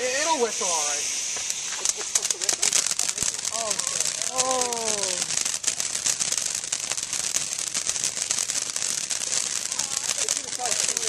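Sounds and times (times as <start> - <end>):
firework crackling: 0.0 - 11.0
person calling out: 4.3 - 5.3.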